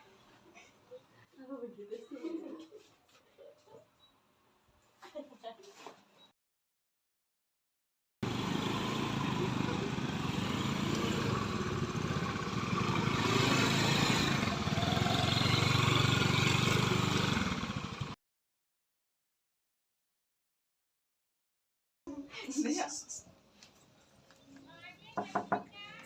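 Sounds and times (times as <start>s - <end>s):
motorcycle engine running: 8.2s - 18.2s.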